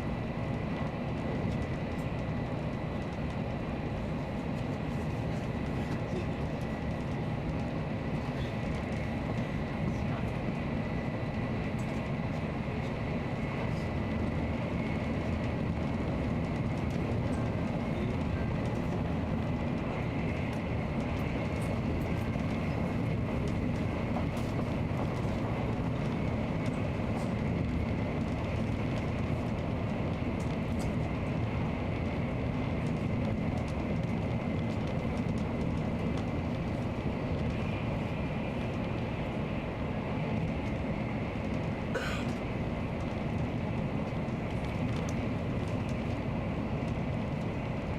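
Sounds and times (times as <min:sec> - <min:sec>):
train rumbling at speed: 0:00.0 - 0:47.9.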